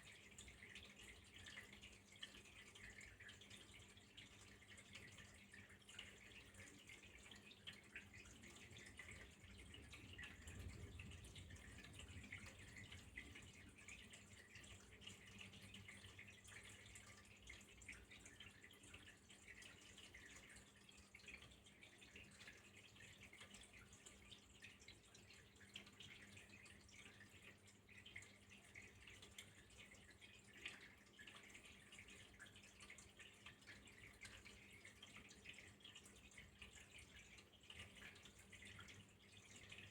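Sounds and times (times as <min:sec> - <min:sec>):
low steady hum: 0:00.0 - 0:29.6
drips and splashes: 0:00.0 - 0:39.9
trickling water: 0:00.0 - 0:39.9.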